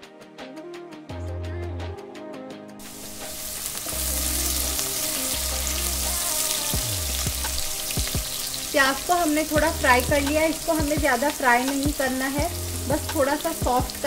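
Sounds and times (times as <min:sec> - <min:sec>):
background music: 0:00.0 - 0:14.0
onions sizzling in oil: 0:02.8 - 0:14.0.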